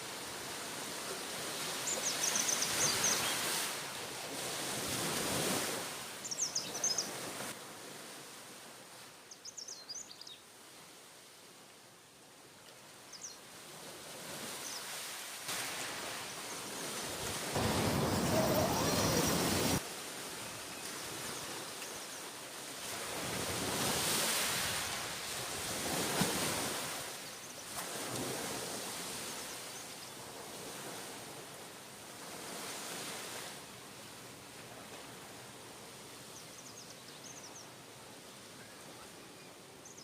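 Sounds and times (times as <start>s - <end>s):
ocean surf: 0.0s - 9.0s, 13.6s - 36.3s
gusting wind: 15.5s - 21.7s.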